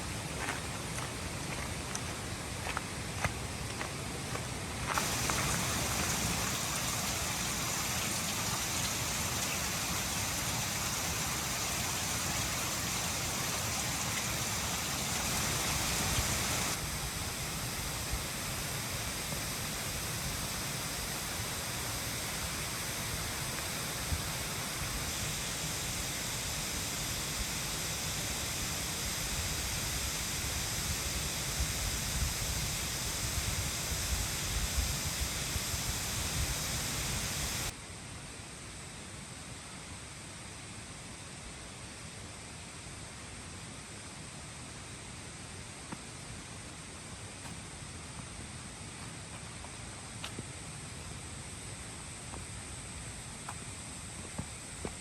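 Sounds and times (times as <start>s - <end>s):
mountain stream rushing: 0.0s - 31.0s.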